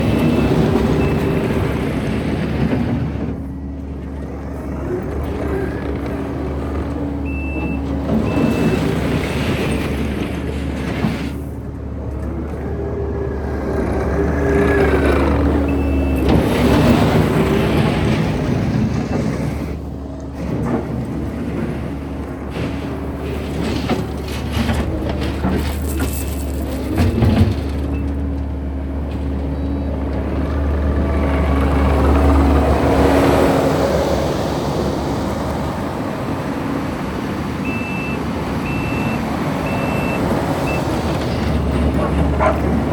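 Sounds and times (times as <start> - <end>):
diesel engine running: 0.0 - 42.9
backup alarm beeps: 7.2 - 8.8, 15.7 - 16.3, 37.7 - 41.8.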